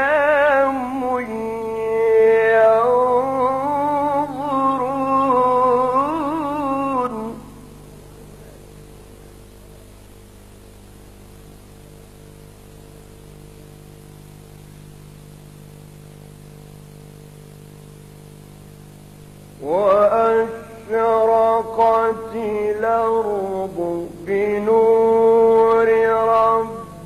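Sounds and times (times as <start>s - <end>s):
man reciting: 0.0s - 7.6s, 19.6s - 27.0s
electrical mains hum: 0.0s - 27.0s.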